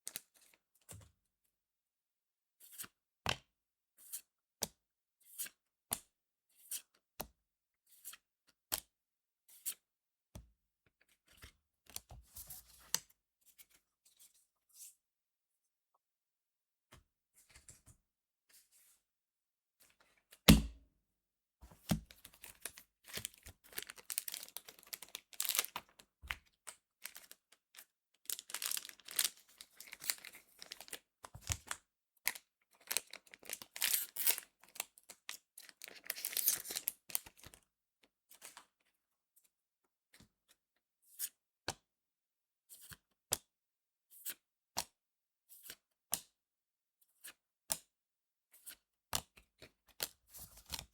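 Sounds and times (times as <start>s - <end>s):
foil pack tearing and crinkling: 23.7s - 25.8s, 28.3s - 31.0s, 32.9s - 34.4s, 35.8s - 37.0s.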